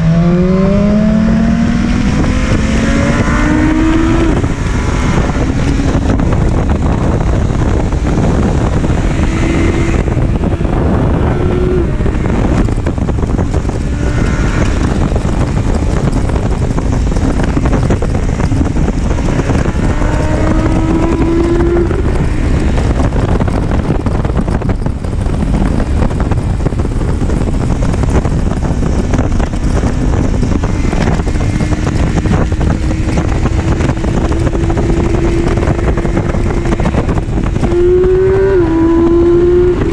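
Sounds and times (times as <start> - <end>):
motorcycle engine accelerating: 0.0 - 39.9
wind noise on microphone: 0.0 - 39.9.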